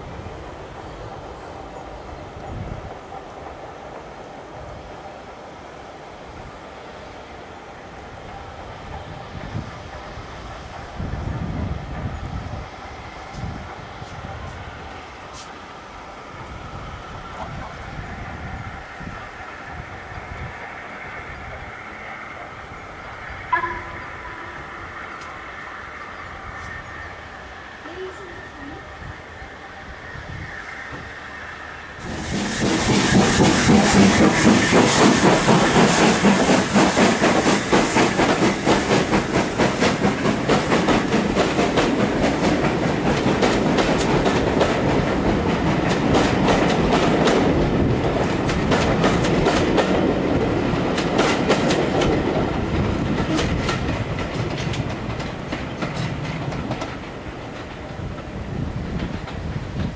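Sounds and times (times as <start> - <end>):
train wheels clattering over rail joints: 32.0 - 59.9.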